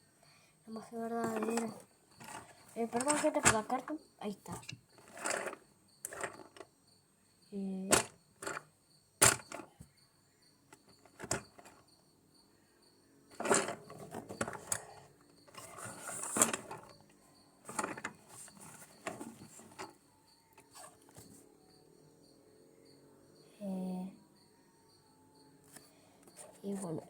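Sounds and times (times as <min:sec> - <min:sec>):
rustling and scraping: 0:01.0 - 0:06.7, 0:07.9 - 0:09.8, 0:10.7 - 0:11.9, 0:13.3 - 0:21.5.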